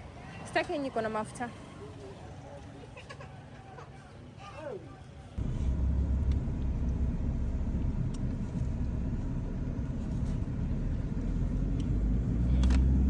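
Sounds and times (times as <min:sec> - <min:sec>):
car engine and road rumble: 0:05.4 - 0:13.0.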